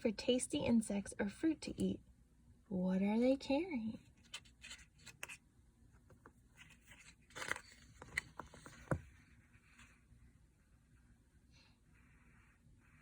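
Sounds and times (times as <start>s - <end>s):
paper rustling: 6.5s - 10.0s.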